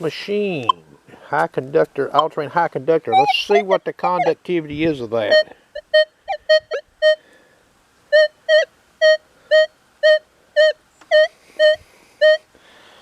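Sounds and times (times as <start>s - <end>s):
metal detector beeps: 3.2s - 4.3s.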